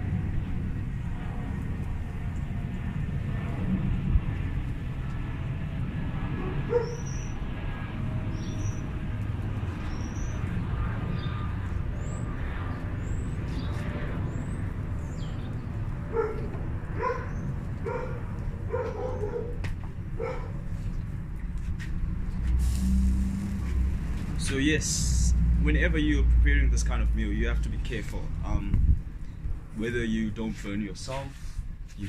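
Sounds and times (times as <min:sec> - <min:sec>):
steady low rumble: 0:00.0 - 0:32.0
dog barking: 0:06.7 - 0:07.1, 0:16.1 - 0:19.6, 0:20.2 - 0:20.6.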